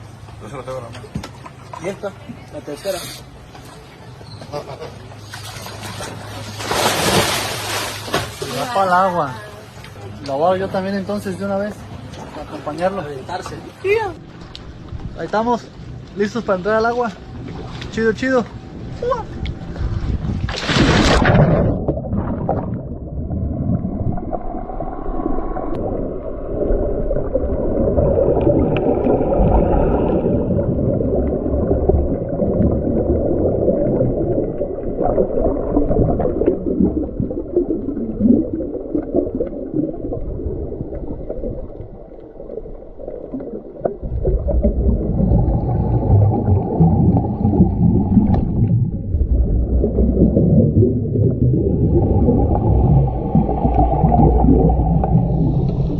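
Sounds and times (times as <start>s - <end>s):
underwater rushing and gurgling: 19.4s - 55.9s.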